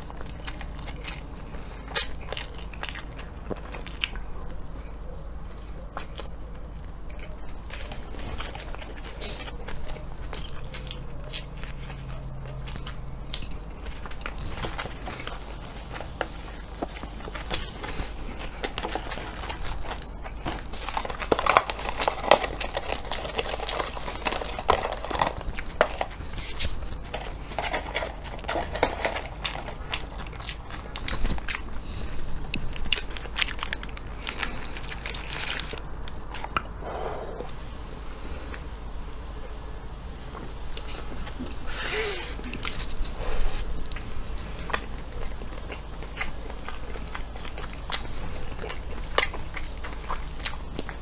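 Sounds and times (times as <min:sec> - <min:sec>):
person chewing food: 0:00.0 - 0:38.8, 0:40.2 - 0:51.0
paper wrapping crinkling: 0:06.0 - 0:36.8.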